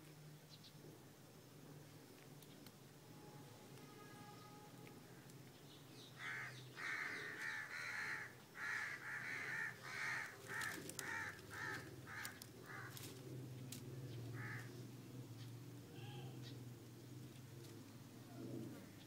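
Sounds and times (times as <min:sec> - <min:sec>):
bird giving harsh hoarse calls: 0:06.2 - 0:13.0, 0:14.3 - 0:14.7.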